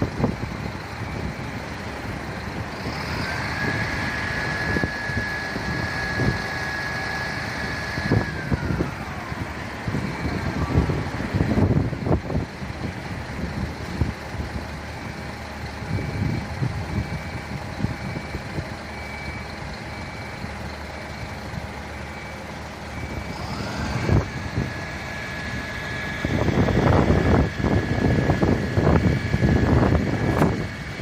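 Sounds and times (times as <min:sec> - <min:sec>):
diesel engine running: 0:00.0 - 0:31.0
whine: 0:00.0 - 0:31.0
reversing beeper: 0:00.6 - 0:12.2, 0:14.8 - 0:30.9
loud gusty noise: 0:02.6 - 0:13.8, 0:23.2 - 0:31.0.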